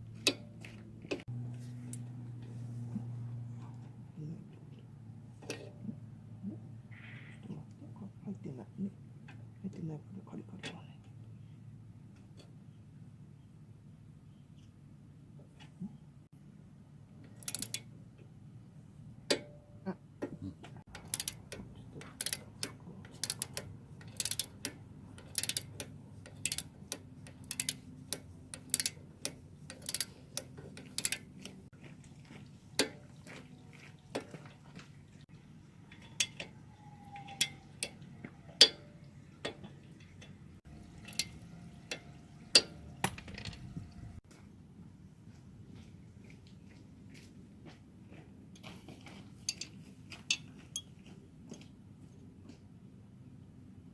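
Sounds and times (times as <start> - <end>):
metal clicks and taps: 17.2 - 17.9, 19.3 - 19.6, 20.9 - 31.6, 41.0 - 43.6
ratchet wrench clicking: 17.3 - 17.9, 20.9 - 31.3, 41.0 - 41.3.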